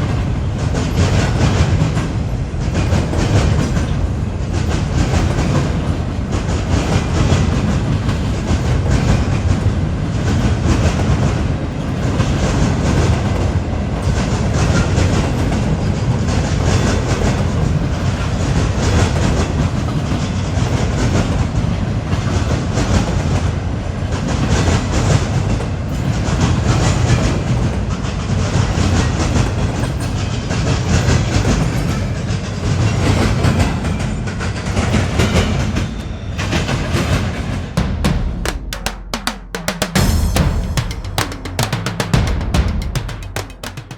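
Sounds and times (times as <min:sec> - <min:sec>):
freight train wheels clacking: 0:00.0 - 0:43.9.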